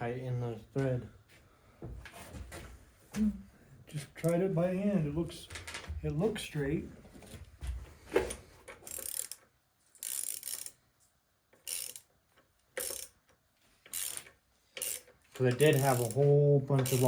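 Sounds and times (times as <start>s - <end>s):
ratchet pawl clicking: 8.8s - 10.8s, 11.6s - 12.1s, 12.7s - 13.2s, 13.8s - 16.2s, 16.8s - 17.0s.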